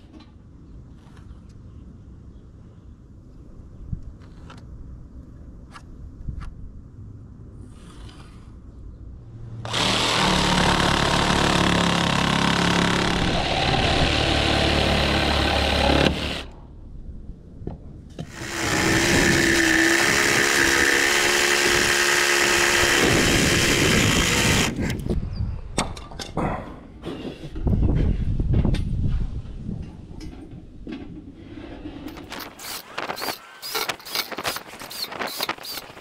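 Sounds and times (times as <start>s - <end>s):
power tool cutting wood: 9.7s - 16.5s, 18.2s - 24.8s.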